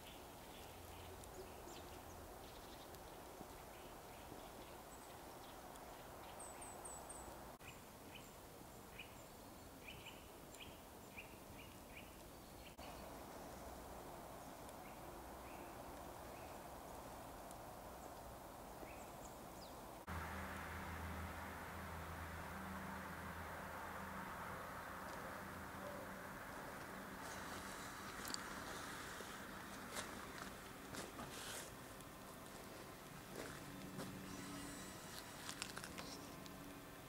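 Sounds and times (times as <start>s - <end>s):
small birds chirping: 0.0s - 13.7s, 14.3s - 20.1s, 32.6s - 36.8s
faint outdoor hiss: 0.0s - 37.0s.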